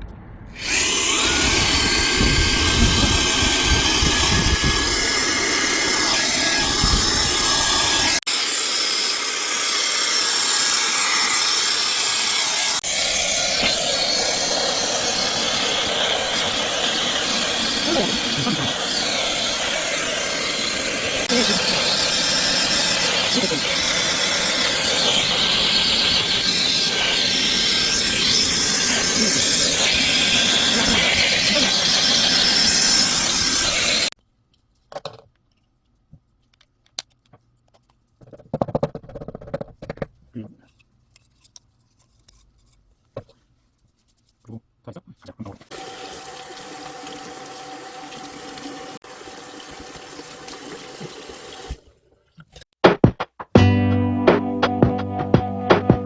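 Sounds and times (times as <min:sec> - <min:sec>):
air gun rushing air: 0:00.0 - 0:08.6
air blower motor whining: 0:00.6 - 0:34.1.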